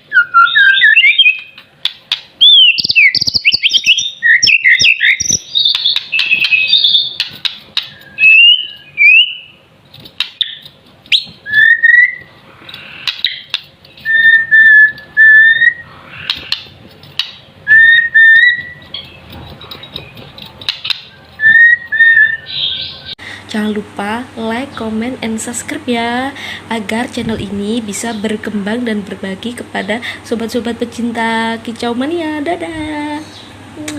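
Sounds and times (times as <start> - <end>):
bird singing whistled notes: 0.0 - 1.6, 2.4 - 7.2, 7.9 - 9.6, 10.4 - 12.3, 13.2 - 15.9, 17.7 - 19.2, 21.1 - 23.2
sharp clicks: 1.3 - 4.0, 5.2 - 8.9, 12.7 - 15.1, 16.2 - 17.4, 18.8 - 22.0.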